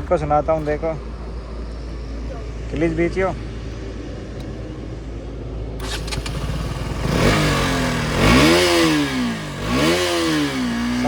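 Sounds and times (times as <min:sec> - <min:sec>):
motorcycle engine revving: 0:05.8 - 0:11.0.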